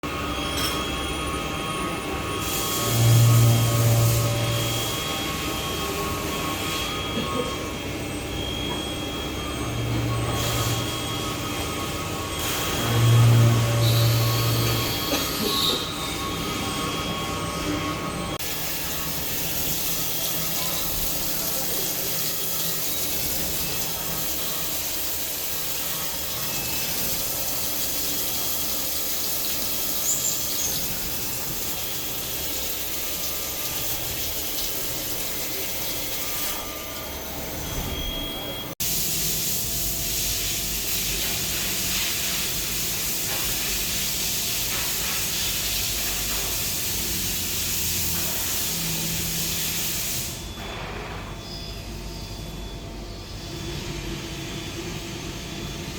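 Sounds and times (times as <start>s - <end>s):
cnc machine running: 0.1s - 38.8s
coolant spraying hiss: 18.4s - 36.3s, 38.8s - 50.4s.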